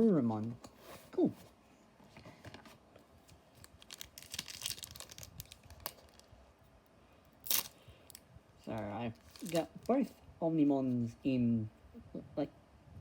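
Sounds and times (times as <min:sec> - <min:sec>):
foil wrapper crinkling: 0:03.3 - 0:06.3, 0:07.4 - 0:07.8, 0:09.2 - 0:10.0.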